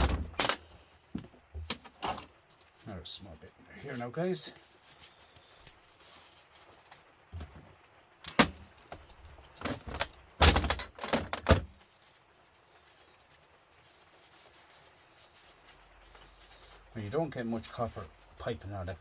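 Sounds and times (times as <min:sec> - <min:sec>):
metal parts clanking: 0:00.0 - 0:00.7, 0:08.3 - 0:08.7, 0:09.6 - 0:11.7.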